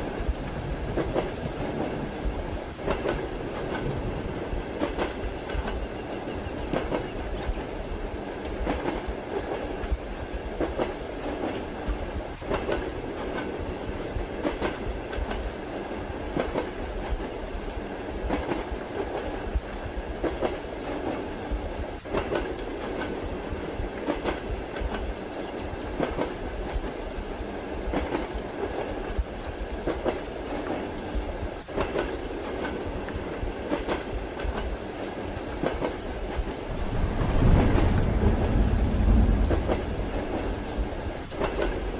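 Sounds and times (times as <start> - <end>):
train rolling rumble: 0.0 - 41.9
train wheels clacking: 0.9 - 7.7, 12.2 - 13.6, 22.0 - 23.2, 31.7 - 41.9.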